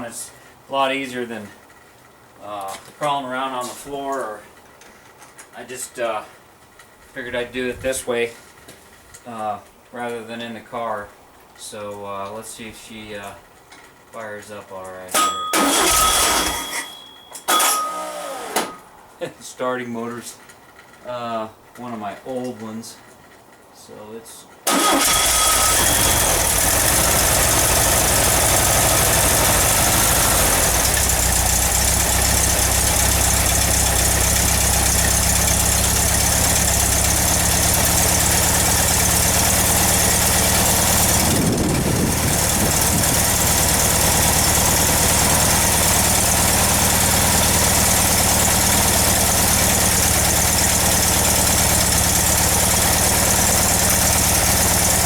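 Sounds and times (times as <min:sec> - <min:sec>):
car engine running: 0:24.7 - 0:55.0.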